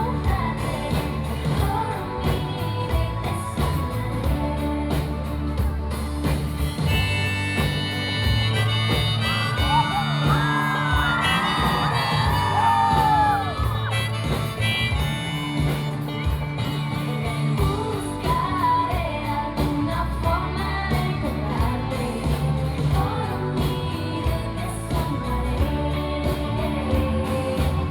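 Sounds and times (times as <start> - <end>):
live pop-rock band playing: 0.0 - 27.9
harmonica-like lead melody: 6.7 - 17.6
audience screaming and whooping: 6.7 - 18.0.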